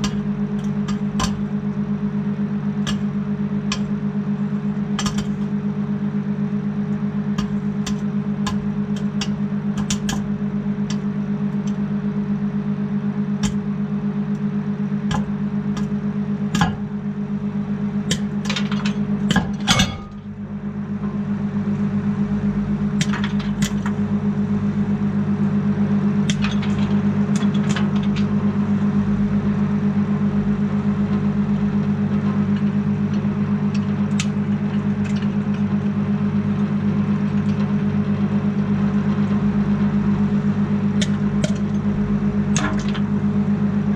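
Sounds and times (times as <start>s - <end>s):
popcorn popping: 0.0s - 12.2s, 12.8s - 20.4s, 22.8s - 24.1s, 26.2s - 28.4s, 32.1s - 36.1s, 40.4s - 43.2s
microwave oven humming: 0.0s - 43.9s.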